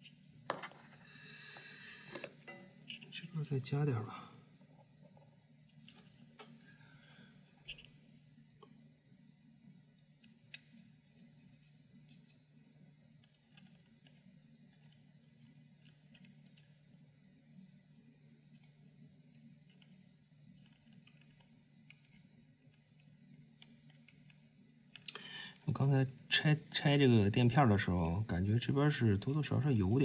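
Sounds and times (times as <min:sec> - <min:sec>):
steady low hum: 0:00.0 - 0:30.0
clicks of small fan parts: 0:20.6 - 0:25.7.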